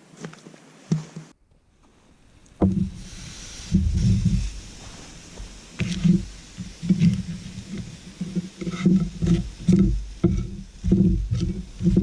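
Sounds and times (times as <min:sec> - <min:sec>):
paddle knocking: 0:02.6 - 0:03.1, 0:05.4 - 0:12.0.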